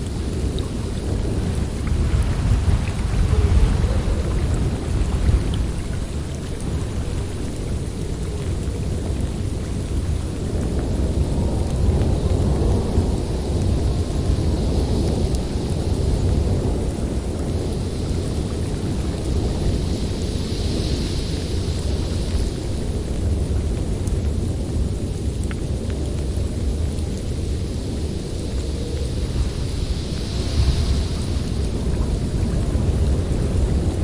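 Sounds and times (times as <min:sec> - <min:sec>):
wind rushing through forest: 0:00.0 - 0:34.0.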